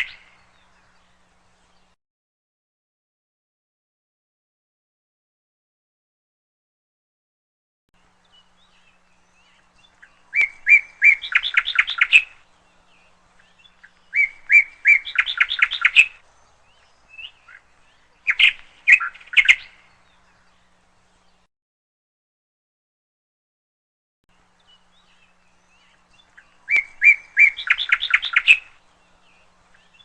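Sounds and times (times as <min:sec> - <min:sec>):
canary singing high chirps: 0:08.2 - 0:21.3, 0:24.6 - 0:30.0.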